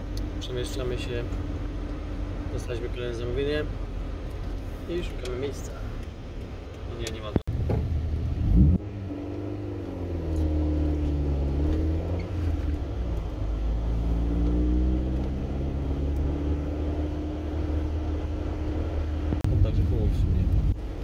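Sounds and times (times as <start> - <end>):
car engine revving: 7.0 - 21.0.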